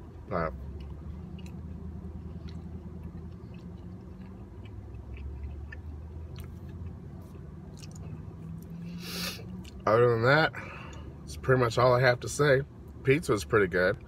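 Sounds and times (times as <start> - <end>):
low hum inside a car: 0.0 - 14.0
person chewing food: 0.6 - 8.8.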